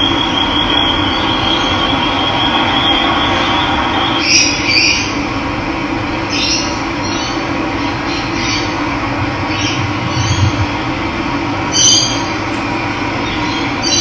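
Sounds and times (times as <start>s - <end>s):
running water rushing: 11.6s - 13.9s
bird short calls: 11.7s - 13.8s.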